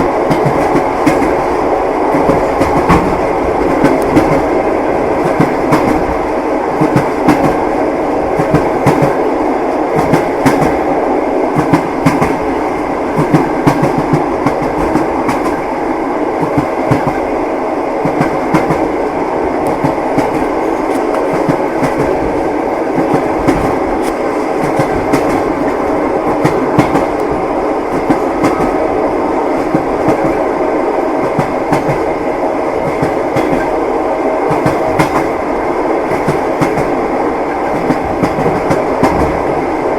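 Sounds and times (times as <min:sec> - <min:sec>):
train rolling rumble: 0:00.0 - 0:39.9
train wheels clattering over rail joints: 0:00.2 - 0:04.5, 0:13.2 - 0:15.6, 0:22.9 - 0:28.8, 0:32.8 - 0:33.7, 0:34.5 - 0:35.4, 0:36.1 - 0:37.0, 0:37.6 - 0:39.4.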